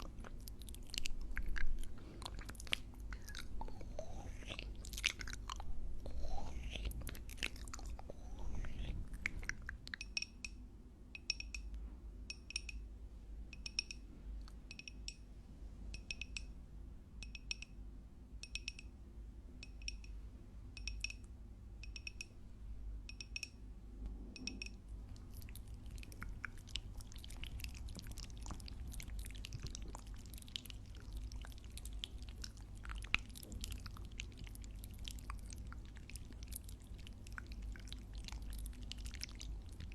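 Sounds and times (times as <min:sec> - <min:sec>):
close chewing and biting: 0:00.0 - 0:10.0, 0:25.1 - 0:39.9.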